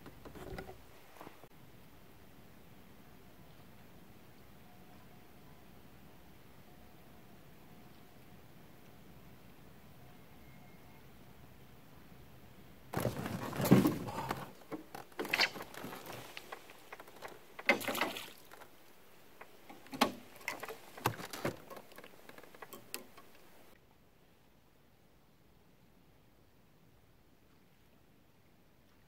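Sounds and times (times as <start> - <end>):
rustling and patter: 12.9 - 23.8.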